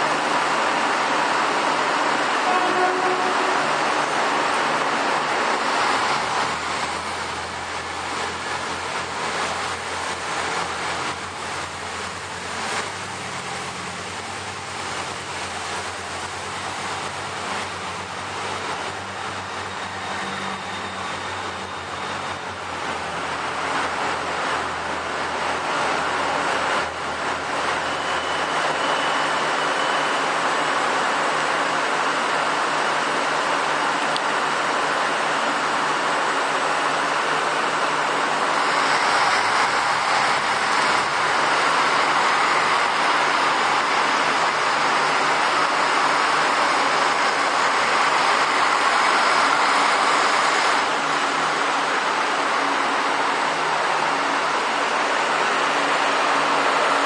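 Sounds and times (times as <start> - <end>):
train running gear hum: 0.0 - 29.6, 30.2 - 57.0
train arriving: 0.0 - 57.0
station noise: 37.6 - 51.9.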